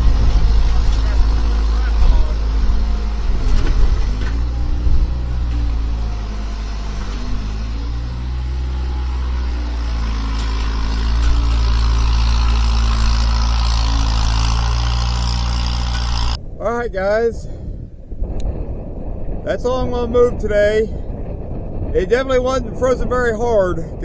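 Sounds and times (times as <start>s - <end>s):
skid steer engine running: 0.0s - 16.4s.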